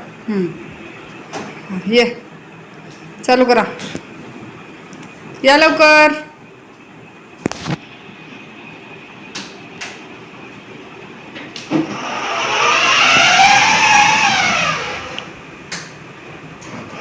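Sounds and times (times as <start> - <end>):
toy car motor whining: 11.9 - 15.3.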